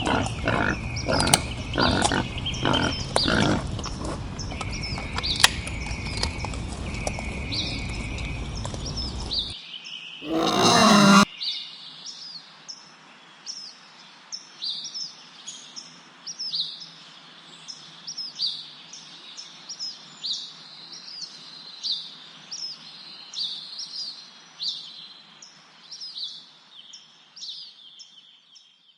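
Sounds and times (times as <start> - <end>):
bird chirping: 0.0 - 3.7.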